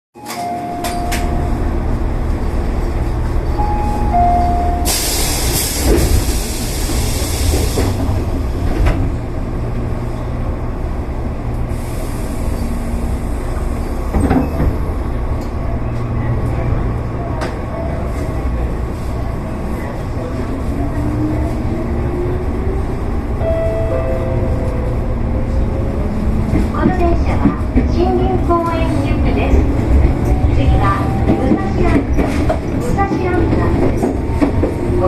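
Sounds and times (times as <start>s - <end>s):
electric train rumbling on rails: 0.2s - 35.0s.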